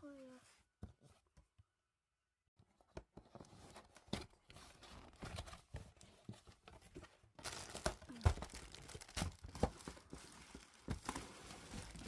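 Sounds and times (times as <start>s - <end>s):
cardboard box being opened: 3.2s - 12.0s.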